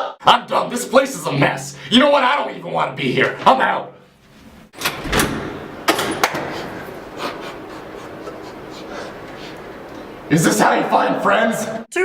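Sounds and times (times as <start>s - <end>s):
room noise hiss: 3.9s - 11.8s
door bang: 4.8s - 6.9s.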